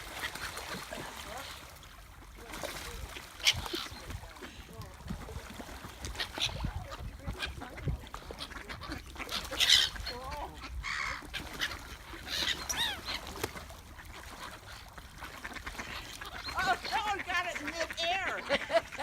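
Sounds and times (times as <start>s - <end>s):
birds squawking: 3.4s - 4.4s, 6.0s - 13.6s, 15.4s - 19.0s.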